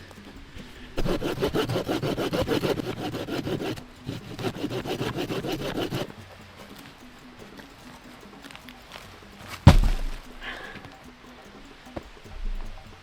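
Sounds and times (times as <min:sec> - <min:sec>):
hand saw cutting wood: 0:00.6 - 0:06.8.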